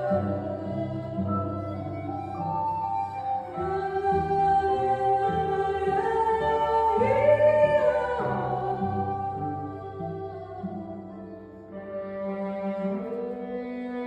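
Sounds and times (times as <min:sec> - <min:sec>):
person singing: 0:00.0 - 0:02.0, 0:03.5 - 0:11.5.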